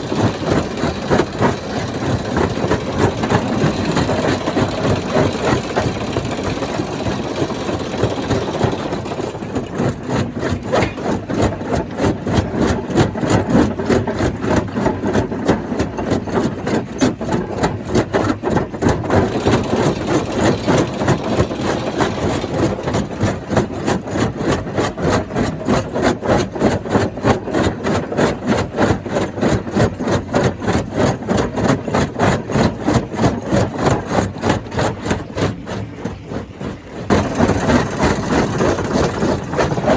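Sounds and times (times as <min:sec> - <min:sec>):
stone crusher machine pulsing: 0:00.0 - 0:39.9.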